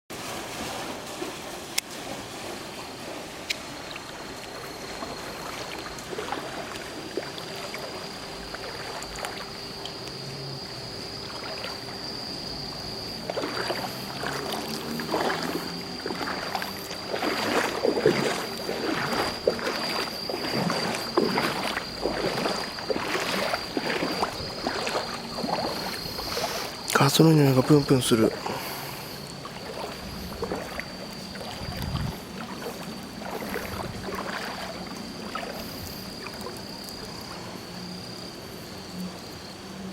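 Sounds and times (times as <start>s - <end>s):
floodwater sloshing and splashing: 0.1s - 39.9s
steady high-pitched tone: 3.6s - 9.8s, 10.6s - 35.9s.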